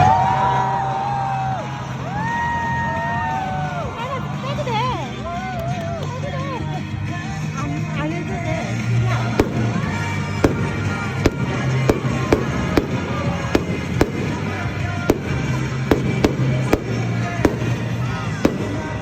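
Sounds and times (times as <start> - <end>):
fireworks bangs: 8.3 - 19.0.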